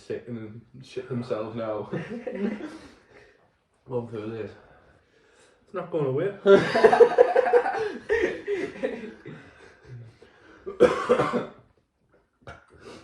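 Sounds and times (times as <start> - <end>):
man coughing: 10.7 - 11.6.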